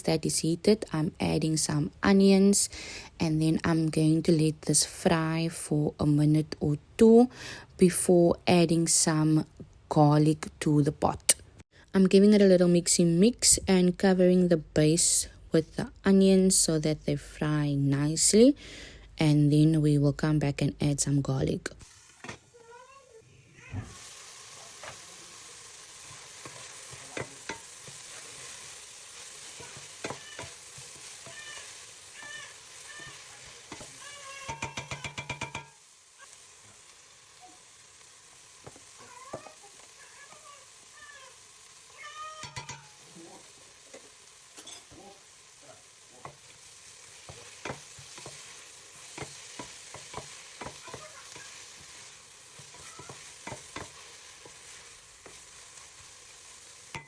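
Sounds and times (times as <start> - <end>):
onions sizzling in hot oil: 0.0 - 7.2, 21.8 - 57.0
utensil clicking in pot: 33.7 - 35.8, 47.2 - 51.9.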